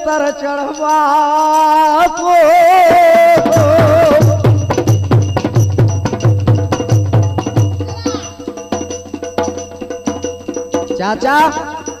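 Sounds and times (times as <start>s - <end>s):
deep hand drum beating: 3.5s - 11.0s.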